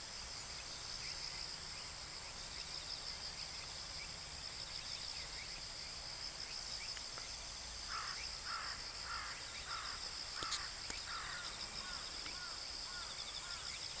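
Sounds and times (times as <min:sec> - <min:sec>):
bird calling: 0:07.9 - 0:13.8
shrill insect drone: 0:07.9 - 0:14.0.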